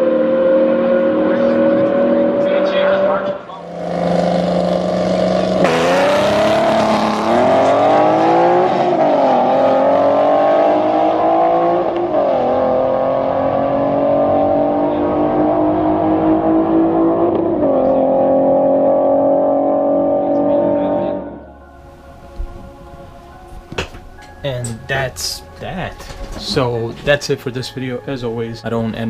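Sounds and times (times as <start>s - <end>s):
car engine accelerating: 0.0s - 21.7s.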